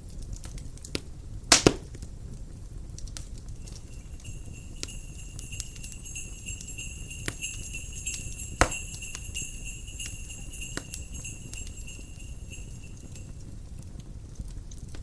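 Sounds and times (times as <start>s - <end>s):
wood fire crackling: 0.0s - 15.0s
sharp pop from fire: 0.9s - 2.1s
jingle bells shaking: 3.5s - 13.7s.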